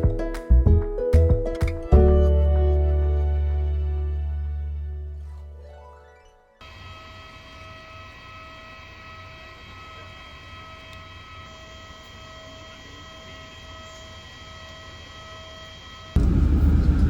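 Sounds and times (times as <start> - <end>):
whine of held tones: 6.6 - 17.0
vehicle interior rumble: 16.2 - 17.0.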